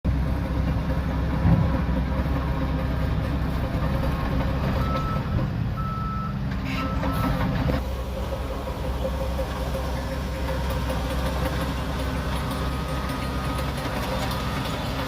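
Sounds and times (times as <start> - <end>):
bulldozer diesel engine running: 0.1 - 15.0
reversing alarm beeps: 4.8 - 7.4, 12.6 - 15.0.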